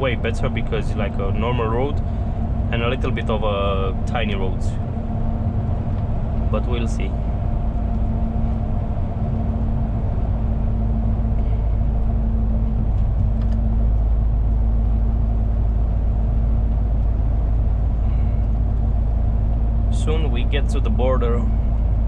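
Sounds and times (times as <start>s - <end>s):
steady hum: 0.0s - 22.0s
truck engine and tyres droning: 0.0s - 22.0s.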